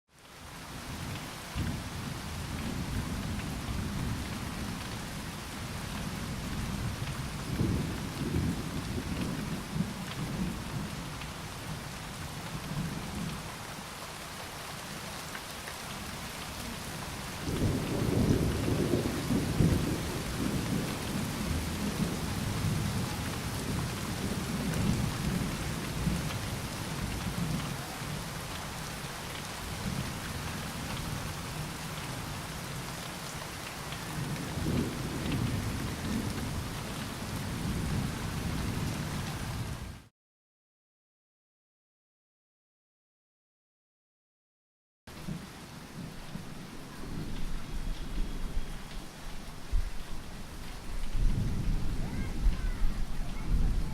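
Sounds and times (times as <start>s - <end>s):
steady rainfall: 0.1s - 40.1s, 45.1s - 53.9s
thunder rumbling: 17.4s - 26.3s, 34.1s - 39.0s, 45.2s - 53.9s.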